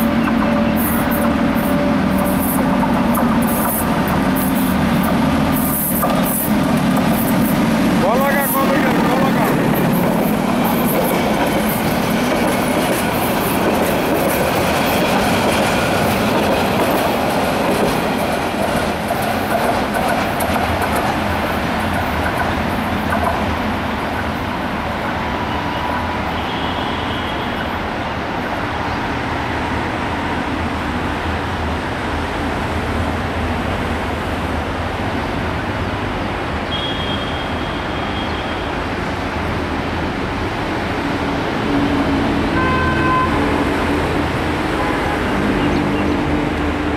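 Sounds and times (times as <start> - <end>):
train wheels clattering on rails: 0.0 - 24.4.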